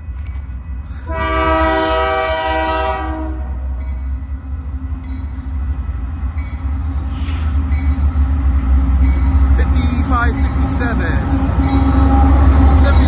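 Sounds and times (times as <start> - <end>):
low rumble of locomotives: 0.0 - 13.0
locomotive horn chord: 1.0 - 3.8.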